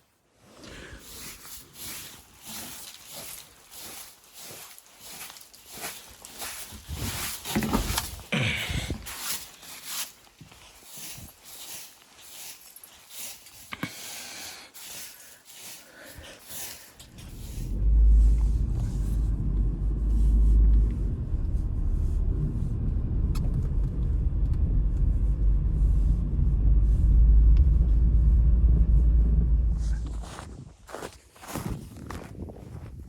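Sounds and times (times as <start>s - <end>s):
soft footsteps: 0.4s - 21.8s, 23.3s - 33.0s
loud deep rumble: 17.0s - 30.8s.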